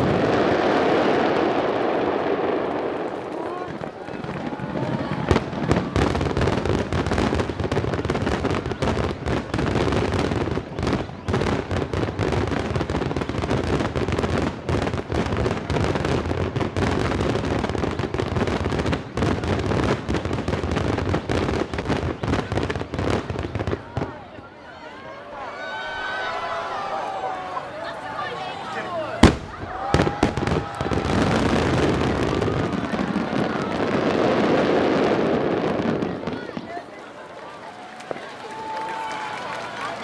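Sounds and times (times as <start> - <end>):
firework shells bursting: 29.2 - 31.7.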